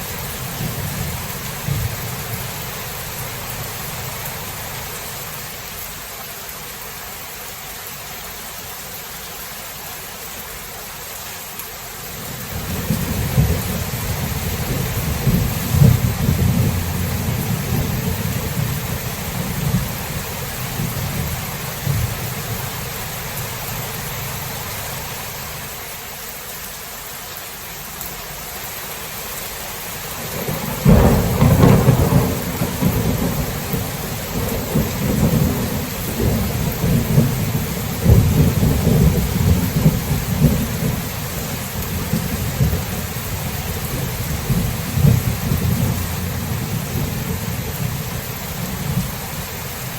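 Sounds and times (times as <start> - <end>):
steady rain: 0.0 - 49.9
rolling thunder: 12.5 - 22.8, 30.4 - 49.3
sharp thunderclap: 12.6 - 22.2, 30.4 - 41.1.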